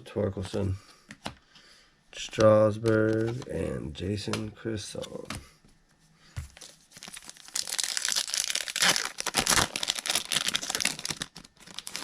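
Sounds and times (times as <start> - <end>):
wrapper torn and crinkled: 6.6 - 12.0.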